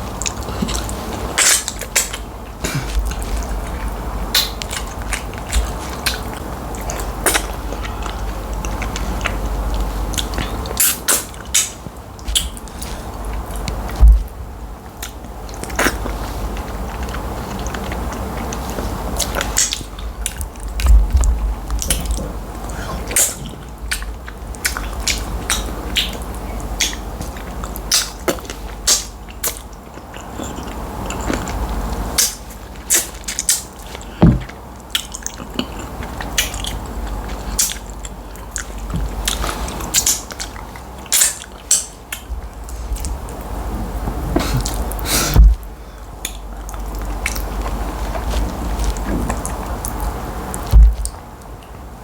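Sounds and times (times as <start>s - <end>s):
sharp eating clicks: 0.1s - 14.0s, 14.8s - 43.5s
wet chewing and lip smacks: 3.0s - 14.0s, 23.1s - 43.5s.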